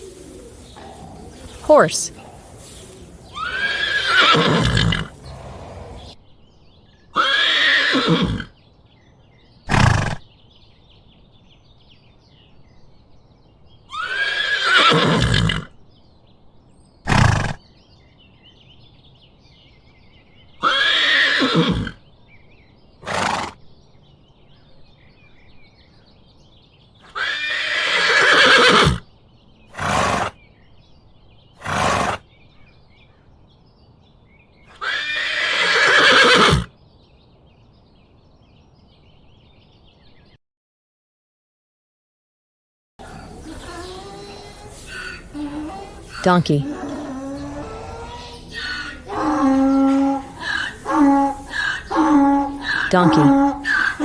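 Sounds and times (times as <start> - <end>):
horse whinnying: 0.0 - 6.2, 7.2 - 8.5, 13.9 - 15.7, 20.6 - 22.0, 27.1 - 29.0, 34.7 - 36.7, 43.0 - 54.0.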